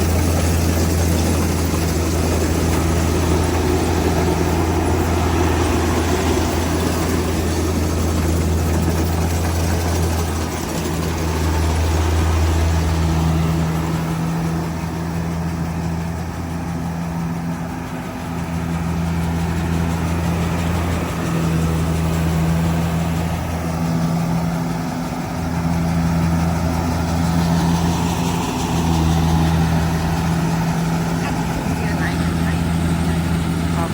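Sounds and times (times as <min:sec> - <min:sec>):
large diesel engine running: 0:00.0 - 0:33.9.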